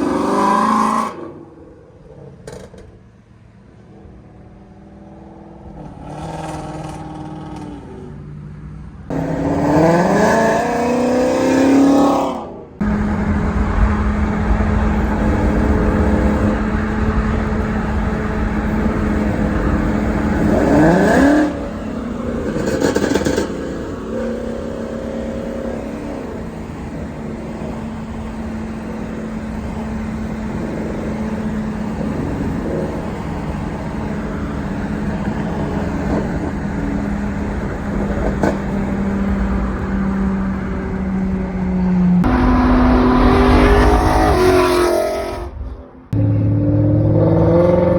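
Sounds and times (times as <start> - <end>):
car engine droning: 0.0 - 47.9.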